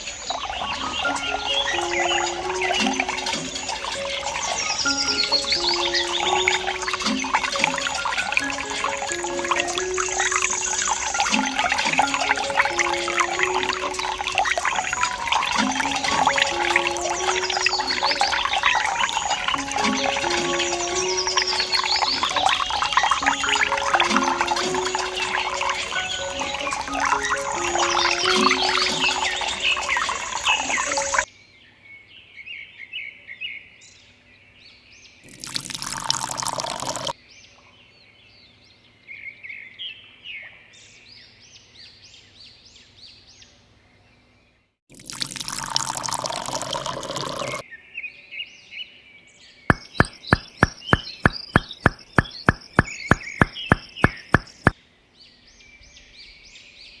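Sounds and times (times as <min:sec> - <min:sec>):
water pouring: 0:00.0 - 0:31.3, 0:35.3 - 0:37.2, 0:44.9 - 0:47.6
birds chirping: 0:00.0 - 0:32.1, 0:45.5 - 0:57.0.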